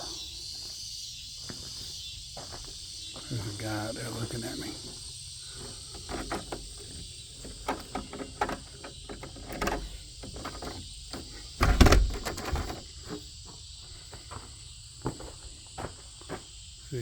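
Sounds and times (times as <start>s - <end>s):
crickets chirping: 0.0s - 17.0s
light knocks and clicks: 5.9s - 12.8s
dull thump: 7.5s - 12.8s.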